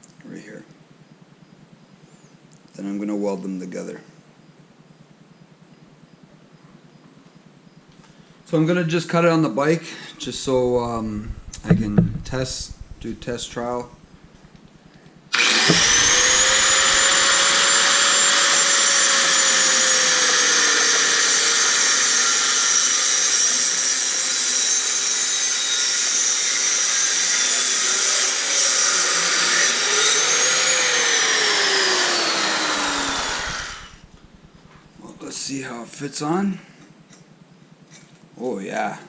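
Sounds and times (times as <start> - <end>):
electric grinder cutting steel pipe: 10.4 - 14.0, 15.3 - 34.3.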